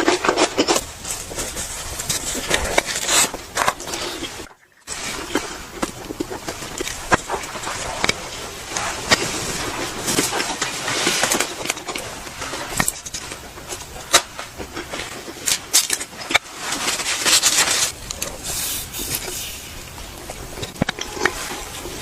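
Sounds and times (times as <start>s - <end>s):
chewing and biting: 0.0s - 16.4s, 17.4s - 22.0s.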